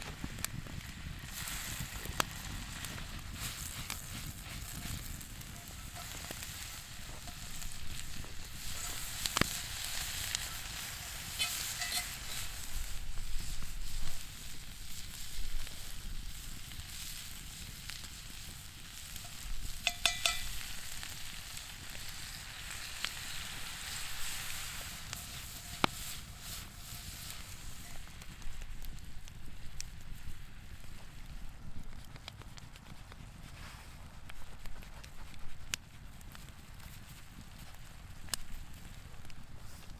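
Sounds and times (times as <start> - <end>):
food sizzling: 0.0 - 31.1
metallic clinks: 19.8 - 20.7.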